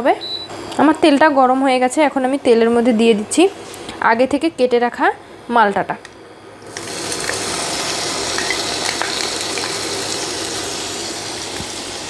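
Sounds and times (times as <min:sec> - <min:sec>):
orange pieces sizzling in oil: 0:06.6 - 0:12.0.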